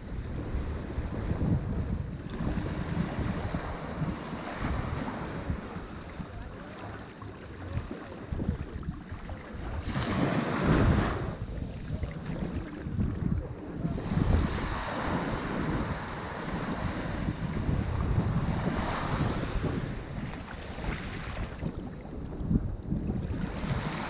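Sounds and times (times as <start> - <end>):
wind buffeting microphone: 0.0 - 24.0
ocean surf breaking: 9.5 - 21.3.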